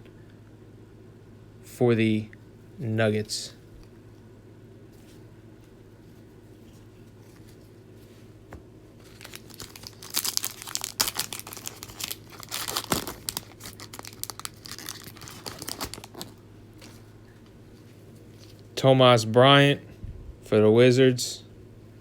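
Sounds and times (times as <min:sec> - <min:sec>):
plastic wrapper crinkling and tearing: 0:09.0 - 0:17.0.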